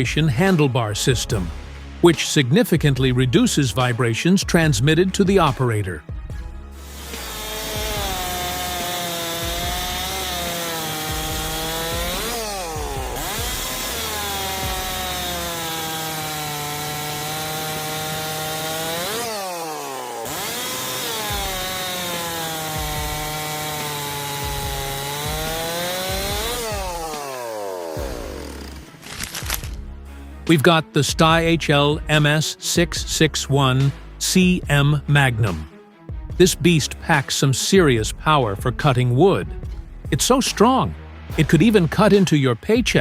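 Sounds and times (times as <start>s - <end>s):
chainsaw cutting wood: 6.7s - 30.0s, 41.3s - 42.4s.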